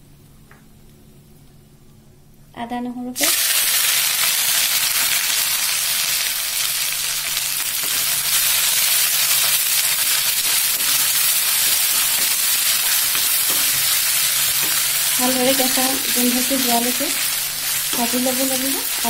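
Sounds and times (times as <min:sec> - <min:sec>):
paste sizzling in hot oil: 0:03.2 - 0:19.0
spatula stirring: 0:07.7 - 0:19.0.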